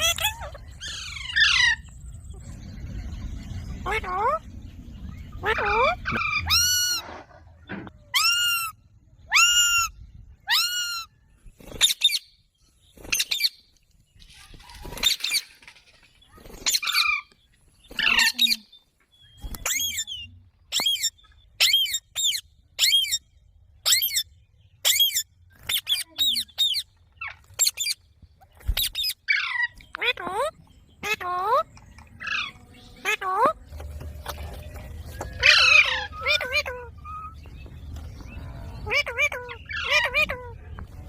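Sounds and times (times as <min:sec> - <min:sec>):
parrot squawking: 0:35.4 - 0:37.4, 0:38.8 - 0:40.6.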